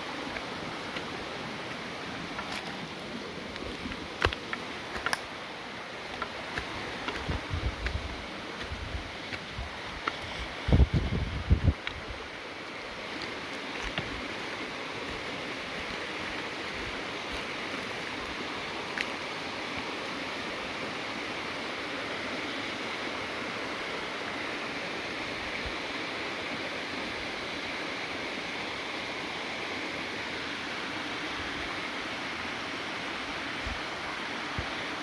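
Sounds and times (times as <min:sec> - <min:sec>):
running water rushing: 0:00.0 - 0:27.8.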